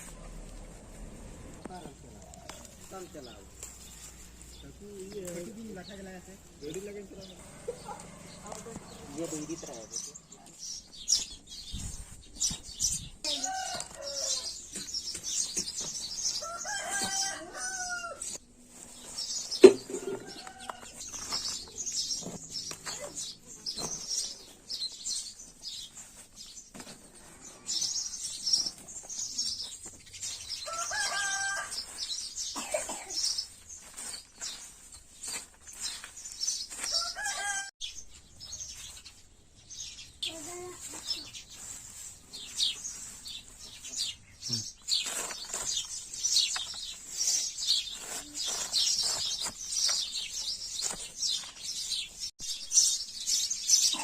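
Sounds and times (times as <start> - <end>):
small birds chirping: 0.0 - 54.0
hen or rooster calls: 13.3 - 14.6, 16.4 - 18.4, 30.6 - 32.1, 36.8 - 37.7.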